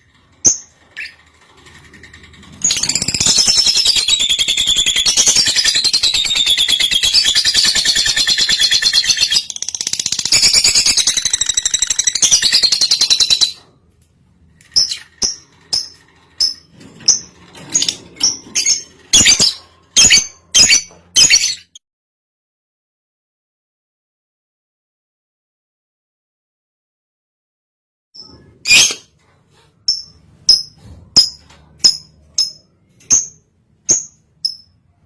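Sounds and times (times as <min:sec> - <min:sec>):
bird rattling chatter: 0:00.0 - 0:13.5, 0:14.6 - 0:19.9.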